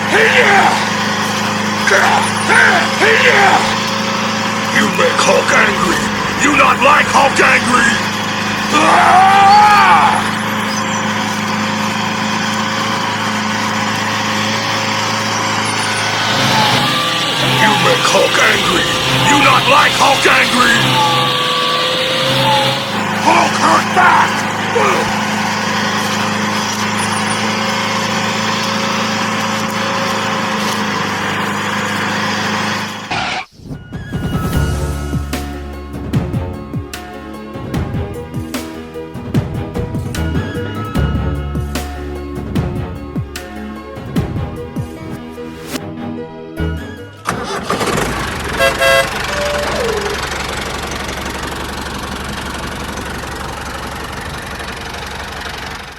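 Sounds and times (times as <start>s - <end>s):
small tractor engine running: 0.0s - 33.5s, 46.7s - 55.9s
music: 4.7s - 11.5s, 15.7s - 25.3s, 33.4s - 48.0s
falling tone: 14.0s - 27.8s
short horn beeps: 48.5s - 50.2s.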